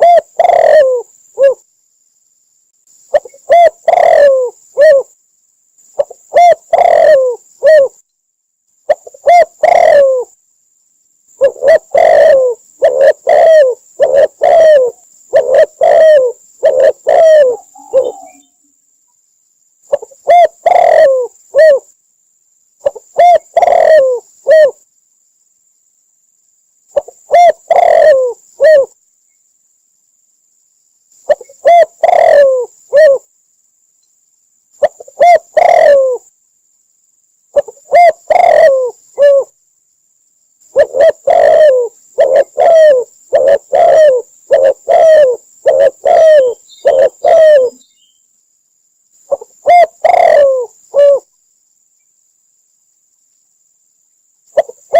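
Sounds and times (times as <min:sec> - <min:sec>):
dove cooing: 0:00.0 - 0:01.6, 0:03.1 - 0:05.2, 0:06.0 - 0:08.0, 0:08.9 - 0:10.4, 0:11.4 - 0:18.6, 0:19.9 - 0:21.9, 0:22.8 - 0:24.8, 0:26.9 - 0:29.0, 0:31.3 - 0:33.3, 0:34.8 - 0:36.3, 0:37.5 - 0:39.6, 0:40.7 - 0:47.9, 0:49.3 - 0:51.3, 0:54.6 - 0:54.9.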